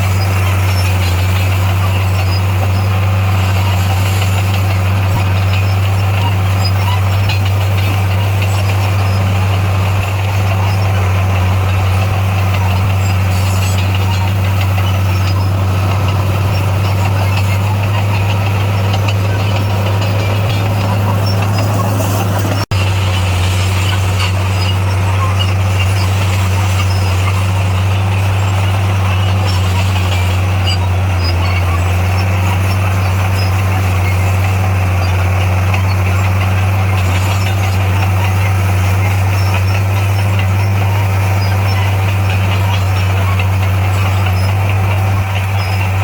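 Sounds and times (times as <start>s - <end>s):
diesel engine droning: 0.0s - 46.0s.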